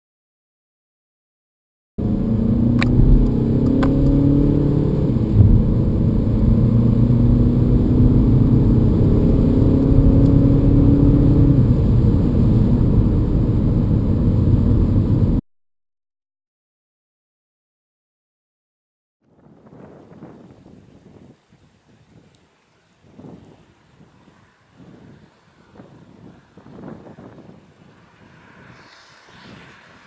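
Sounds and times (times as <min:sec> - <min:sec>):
car engine accelerating: 0:02.0 - 0:15.4
gear shift bump: 0:02.8 - 0:04.2.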